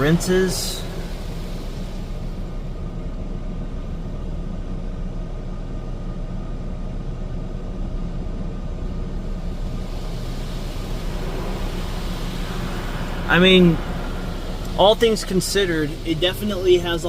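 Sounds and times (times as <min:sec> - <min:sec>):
hiss: 0:00.0 - 0:03.0, 0:09.2 - 0:17.0
car wash rinse rumble: 0:00.0 - 0:17.0.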